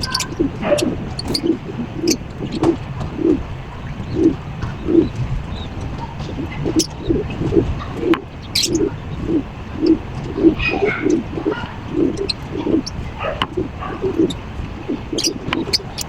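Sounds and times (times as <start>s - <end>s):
bird calling in low notes: 0.0s - 16.0s
sharp clicks: 0.0s - 16.0s.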